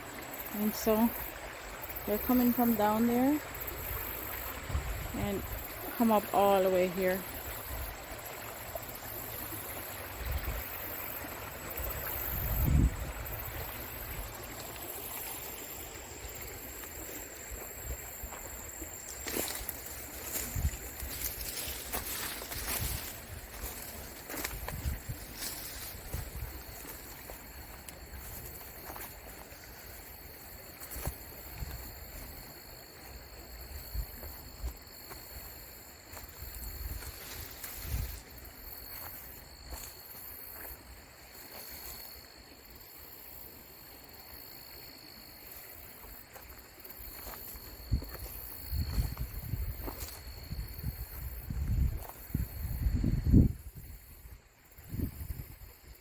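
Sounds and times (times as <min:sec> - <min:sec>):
creek water running: 0:00.0 - 0:56.0
wind rumbling on microphone: 0:03.2 - 0:05.8, 0:11.8 - 0:14.6, 0:19.2 - 0:27.1, 0:47.8 - 0:56.0.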